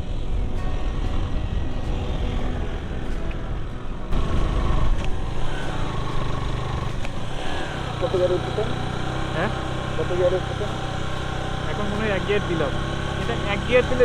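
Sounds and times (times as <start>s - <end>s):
motorcycle engine running: 3.9s - 14.0s.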